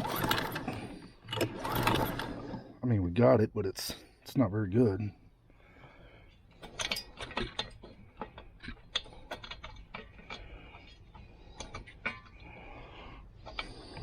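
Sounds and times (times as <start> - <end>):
tool clicks and metallic rattles: 0.0 - 2.6, 6.6 - 12.4.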